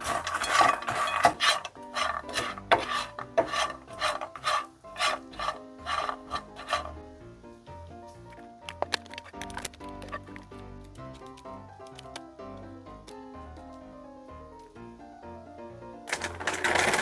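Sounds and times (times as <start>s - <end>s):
toasted bread cubes scraping: 0.0s - 7.0s, 16.1s - 17.0s
light background music: 0.0s - 17.0s.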